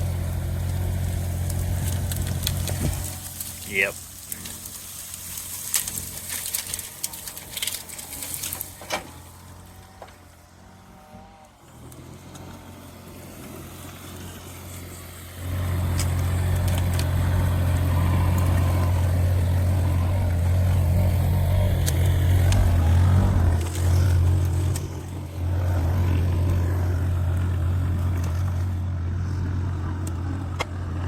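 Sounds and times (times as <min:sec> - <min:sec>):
excavator diesel engine: 0:00.0 - 0:31.0
sharp cracks and clicks: 0:00.6 - 0:09.2, 0:15.5 - 0:19.6, 0:20.3 - 0:25.3.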